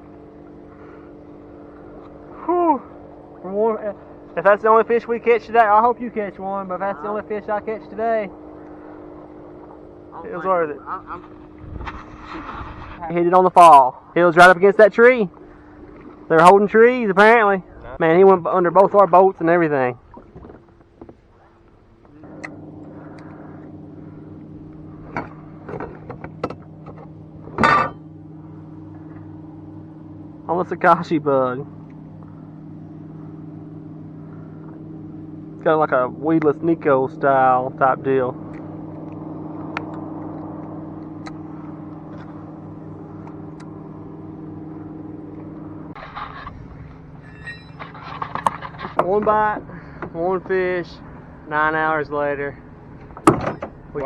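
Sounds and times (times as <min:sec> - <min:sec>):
car engine running: 0:00.0 - 0:54.0
steady low hum: 0:00.0 - 0:54.0
short knocks and clunks: 0:53.0 - 0:53.8.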